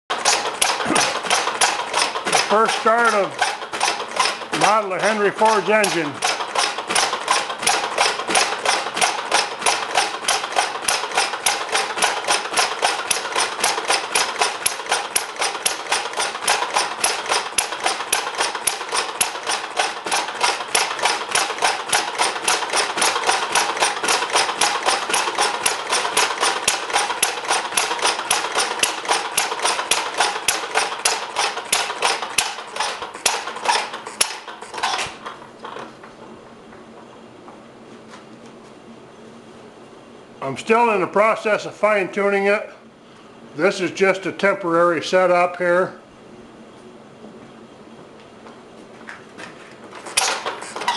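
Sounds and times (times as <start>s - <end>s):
single-cylinder engine knocking: 0.1s - 35.8s.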